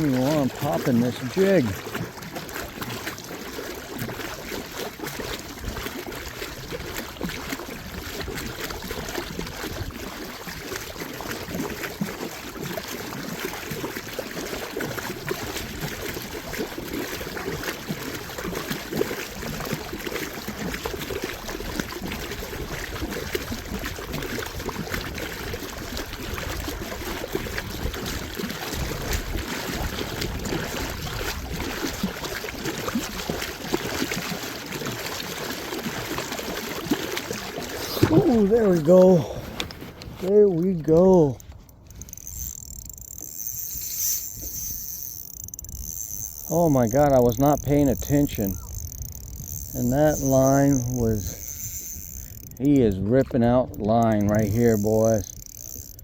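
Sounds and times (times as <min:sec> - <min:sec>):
small splashes: 0:00.0 - 0:56.0
water lapping against boat hull: 0:00.0 - 0:56.0.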